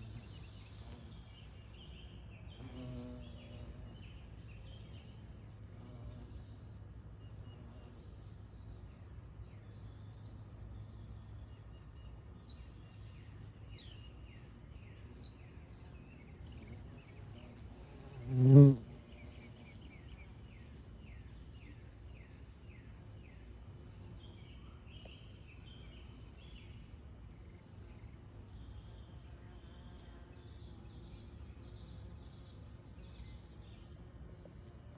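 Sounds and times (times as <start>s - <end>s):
bumblebee buzzing past: 0.0s - 1.6s, 2.4s - 4.4s, 5.6s - 6.5s, 16.0s - 21.0s, 28.7s - 33.5s
high pulsing insect trill: 9.8s - 34.9s.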